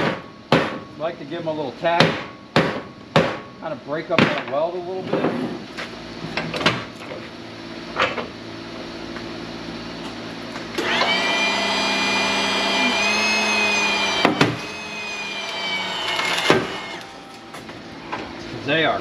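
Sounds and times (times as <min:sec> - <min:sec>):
hydraulic pump whining: 0:10.0 - 0:18.8.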